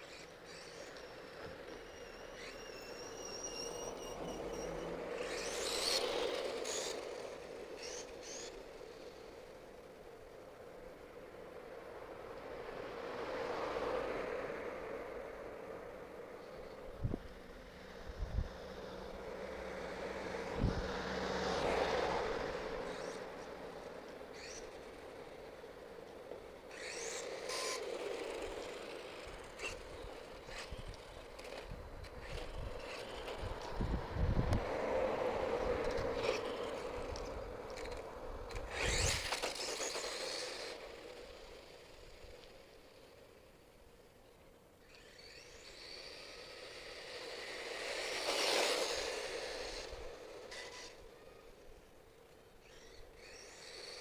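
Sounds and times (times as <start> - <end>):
electric motor whining: 0.0 - 10.3, 16.5 - 43.6, 44.8 - 54.0.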